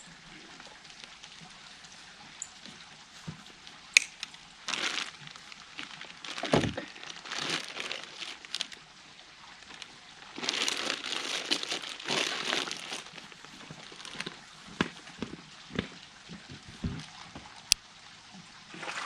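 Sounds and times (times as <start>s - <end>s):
plastic bags crinkling: 4.7s - 8.8s, 9.6s - 15.1s.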